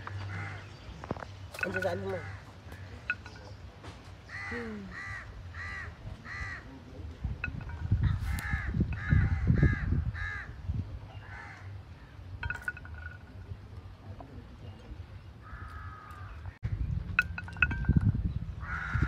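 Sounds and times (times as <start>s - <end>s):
bird calling: 0.0s - 6.7s, 14.6s - 19.0s.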